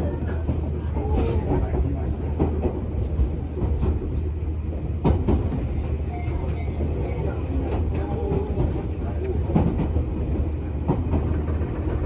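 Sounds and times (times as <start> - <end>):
electric train rumbling inside car: 0.0 - 12.0
train wheel clacks on rails: 0.0 - 12.0.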